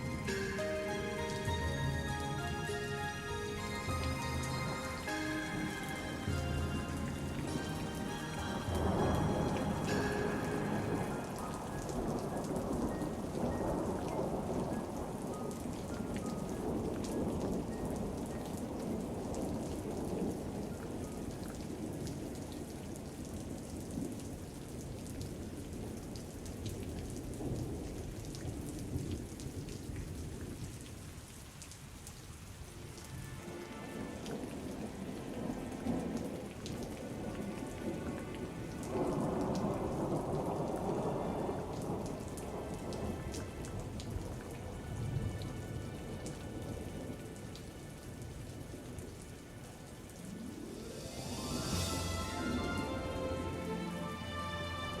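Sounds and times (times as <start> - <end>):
steady rain: 0.0 - 55.0
rolling thunder: 7.1 - 26.0, 34.1 - 47.2.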